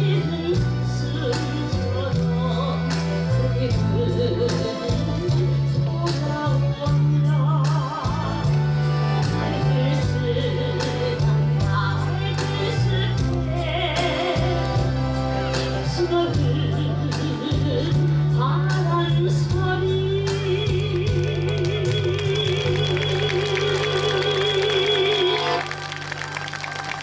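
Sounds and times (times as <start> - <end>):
accordion: 0.0 - 27.0
backing track with bass and drums: 0.0 - 27.0
woman singing with vibrato: 15.9 - 27.0.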